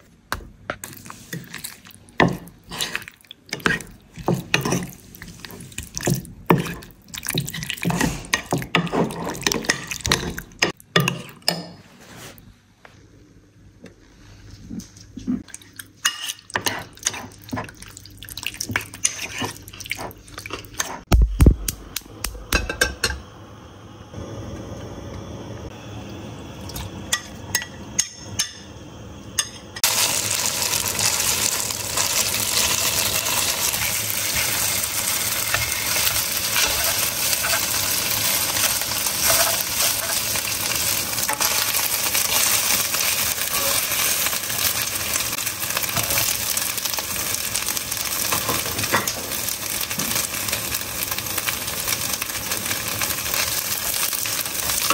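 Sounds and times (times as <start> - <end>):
metal spoon stirring in a bowl: 18.8 - 19.8, 35.4 - 40.4
chicken sizzling in a wok: 25.7 - 54.9.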